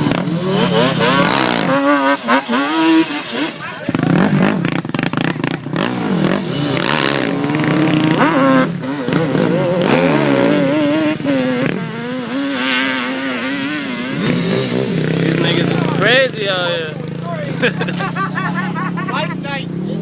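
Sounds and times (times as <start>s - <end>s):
dirt bike engines revving: 0.0s - 20.0s.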